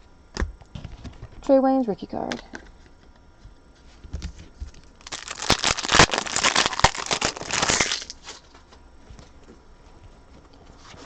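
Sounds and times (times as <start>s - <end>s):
foil wrapper tearing and crinkling: 4.8s - 8.5s.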